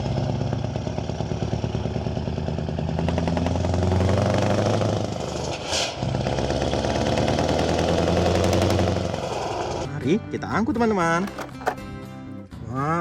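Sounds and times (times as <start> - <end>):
truck engine rumbling: 11.0 - 12.4.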